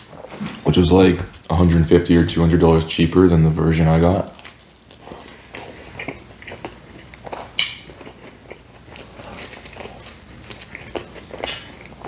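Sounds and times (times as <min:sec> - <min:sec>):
pizza being chewed with crunches: 0:02.4 - 0:12.0.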